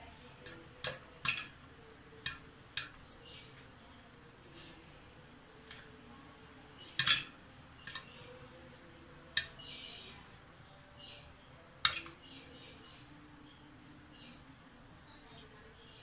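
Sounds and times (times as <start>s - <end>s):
popcorn popping in metal pot: 0.0s - 3.3s, 6.8s - 8.2s, 9.3s - 9.7s, 11.8s - 12.4s.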